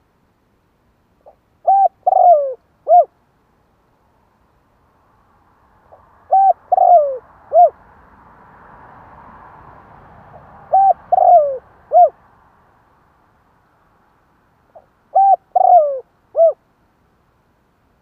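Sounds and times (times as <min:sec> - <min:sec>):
dove cooing: 0:01.2 - 0:03.1, 0:05.9 - 0:07.8, 0:10.7 - 0:12.2, 0:14.7 - 0:16.6.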